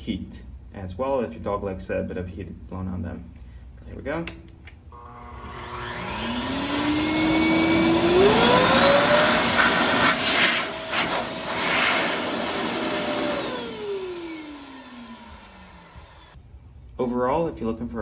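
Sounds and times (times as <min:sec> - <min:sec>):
blower motor whine: 0:04.9 - 0:16.4.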